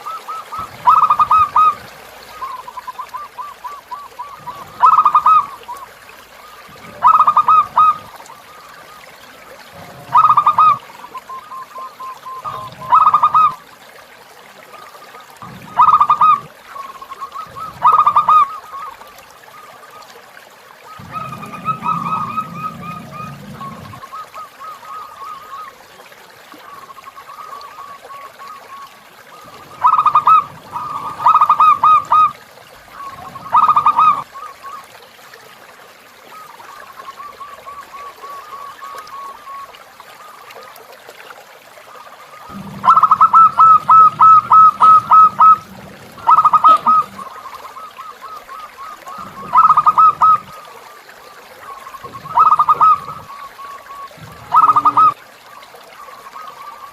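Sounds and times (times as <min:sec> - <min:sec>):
doves cooing: 0:00.0 - 0:13.7, 0:14.8 - 0:20.0, 0:20.8 - 0:25.9, 0:26.6 - 0:35.0, 0:42.4 - 0:55.2
flowing water: 0:00.0 - 0:56.9.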